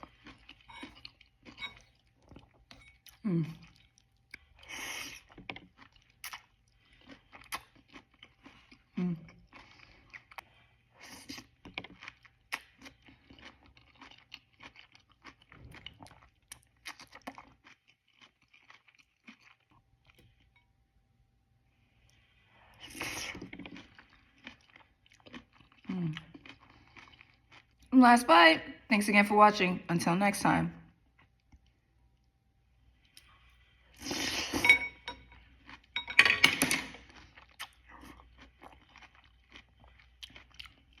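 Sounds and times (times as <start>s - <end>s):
chewing with wet crunches: 0.0s - 20.6s, 22.8s - 27.9s, 37.0s - 41.0s
fork scraping a dish: 0.5s - 2.0s.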